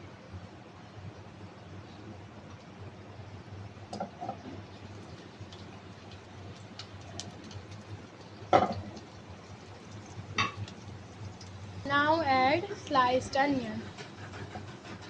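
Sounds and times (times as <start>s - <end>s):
food sizzling in oil: 4.0s - 13.7s.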